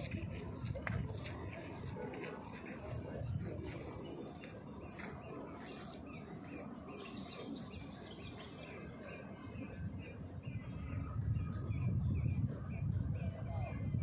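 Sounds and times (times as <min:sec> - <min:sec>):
low background rumble: 0:09.2 - 0:14.0.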